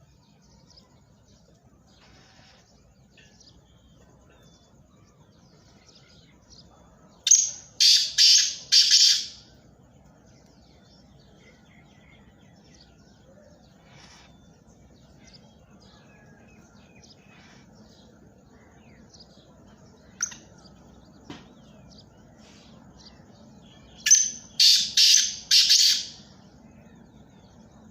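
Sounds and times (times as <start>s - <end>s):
faint bird chirps: 0.0s - 27.9s
francolin harsh calls: 1.9s - 9.6s, 11.5s - 16.3s, 17.0s - 19.1s, 22.4s - 27.0s.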